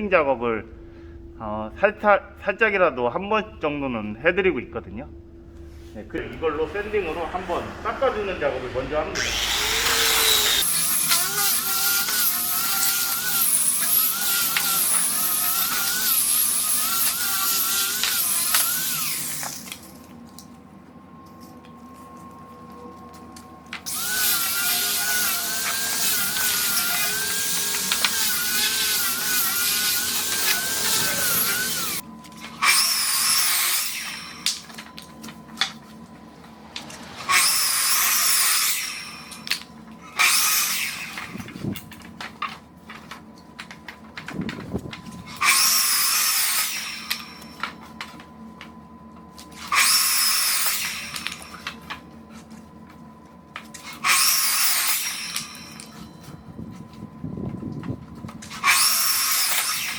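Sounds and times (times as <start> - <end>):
angle grinder sanding wood: 6.1 - 19.5, 23.9 - 32.0.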